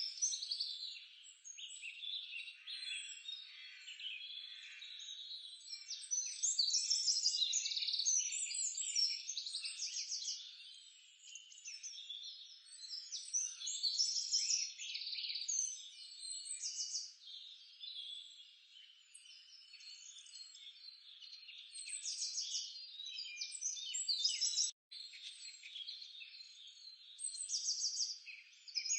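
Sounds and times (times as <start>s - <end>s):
birds chirping and trilling: 0.0s - 28.9s.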